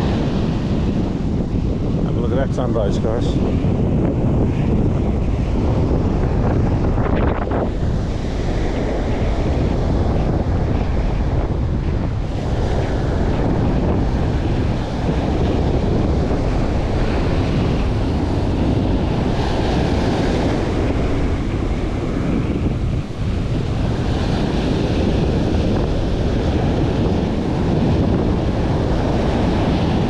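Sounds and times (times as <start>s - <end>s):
ocean surf washing: 0.0s - 30.0s
wind buffeting microphone: 0.0s - 30.0s.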